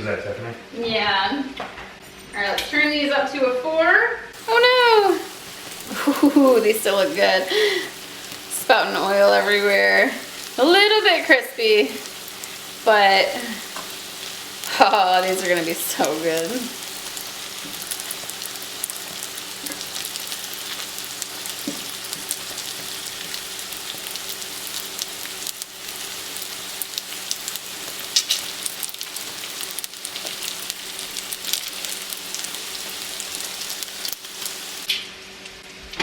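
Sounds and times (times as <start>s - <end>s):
food sizzling in hot oil: 4.3s - 35.0s
spattering oil pops: 28.1s - 28.5s.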